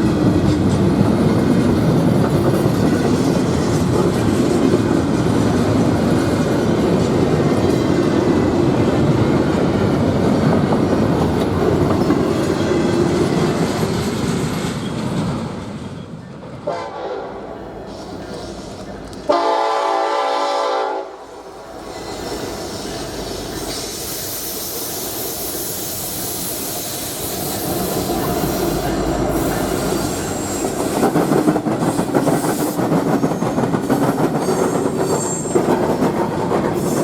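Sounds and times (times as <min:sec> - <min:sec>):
train rumble and wheel clatter: 0:00.0 - 0:37.0
train horn blast: 0:16.6 - 0:17.6, 0:19.2 - 0:21.5.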